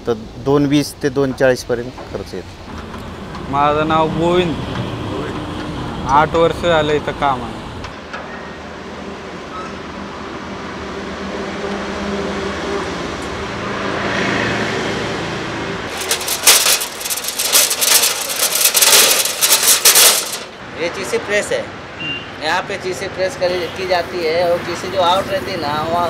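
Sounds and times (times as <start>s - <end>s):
rapid crackling clatter: 15.9s - 20.6s.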